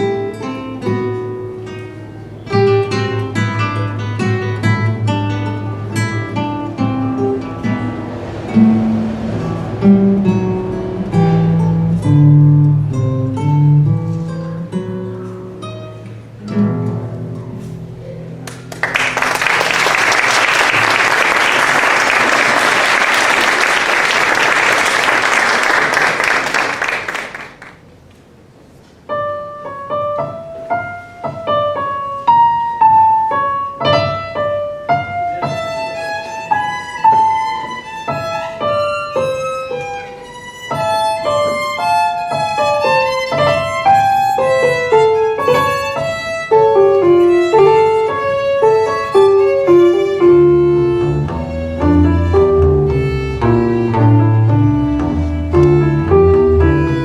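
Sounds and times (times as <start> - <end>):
violin with piano: 0.0 - 16.4, 30.2 - 57.0
audience applauding: 18.4 - 27.9.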